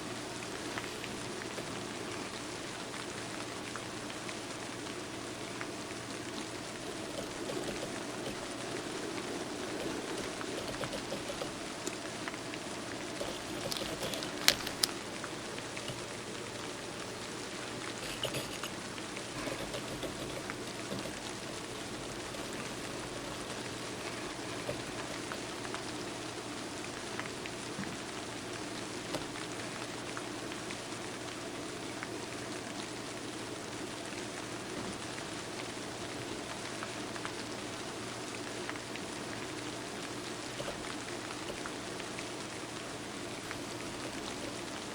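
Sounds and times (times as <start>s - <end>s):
rain patter: 0.0s - 44.9s
sharp clicks: 6.9s - 8.9s, 9.7s - 12.0s, 13.2s - 15.0s, 19.4s - 23.7s.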